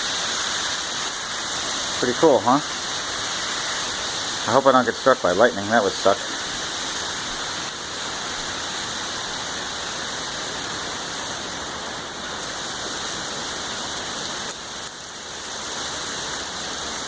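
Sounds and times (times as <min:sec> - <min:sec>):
heavy rain: 0:00.0 - 0:17.0
water streaming down rain chain: 0:00.0 - 0:17.0.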